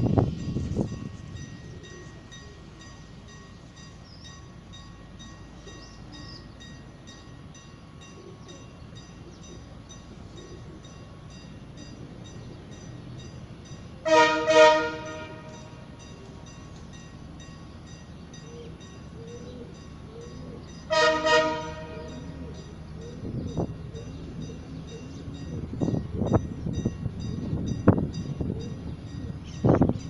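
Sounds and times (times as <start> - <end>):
locomotive engine humming: 0.0 - 30.0
train horn blasts: 14.0 - 16.0, 20.9 - 22.5.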